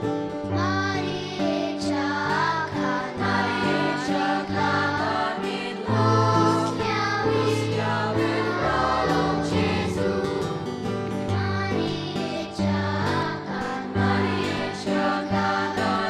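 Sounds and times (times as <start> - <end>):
instrumental accompaniment: 0.0 - 16.0
choir singing a carol: 0.6 - 16.0.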